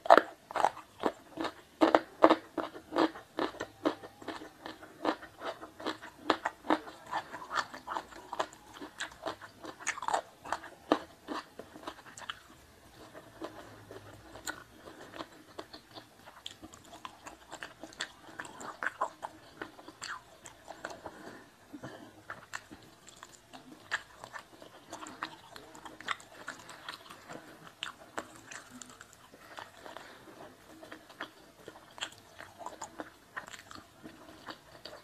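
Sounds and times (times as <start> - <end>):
wet crunchy chewing: 0.0 - 21.3.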